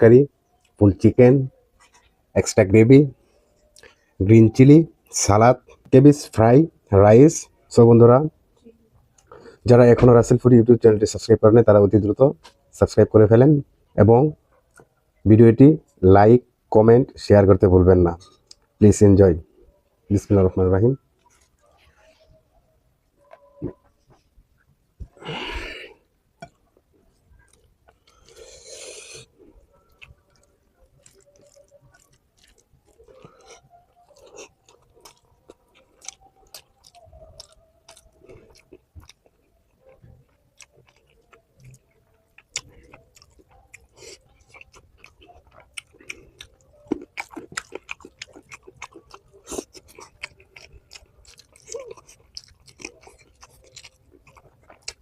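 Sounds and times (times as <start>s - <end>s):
chewing and crunching food: 1.5s - 4.2s, 14.5s - 15.0s, 19.4s - 55.0s.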